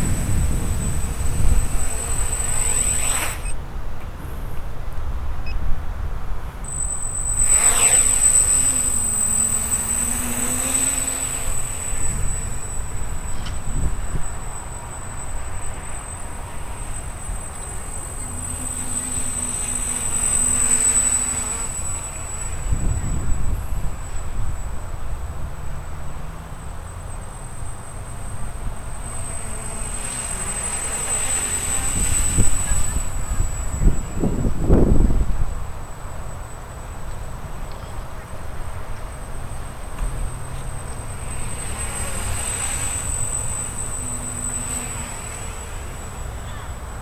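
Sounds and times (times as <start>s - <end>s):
wind buffeting microphone: 0.0s - 7.2s, 31.4s - 35.8s
distant drone motors buzzing: 0.0s - 47.0s.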